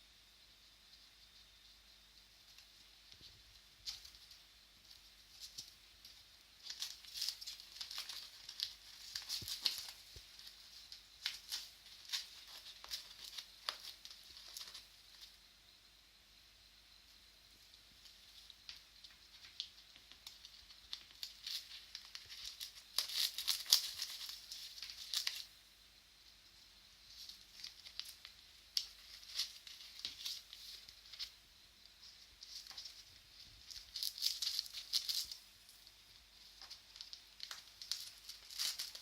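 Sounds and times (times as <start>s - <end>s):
newspaper rustling and tearing: 6.6s - 14.9s, 19.4s - 25.5s, 27.2s - 31.4s, 32.4s - 35.5s, 36.4s - 39.0s.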